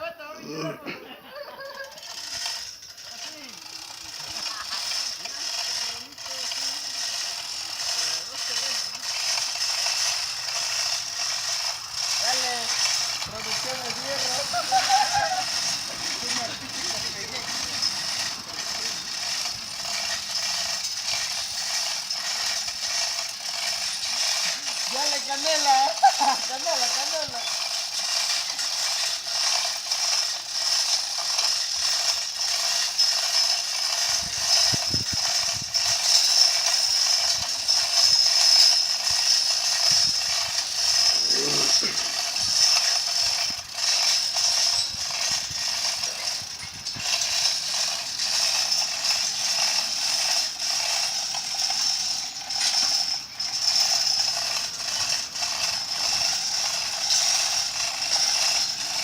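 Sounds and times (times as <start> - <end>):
rapid ratchet clicking: 1.4 - 59.0.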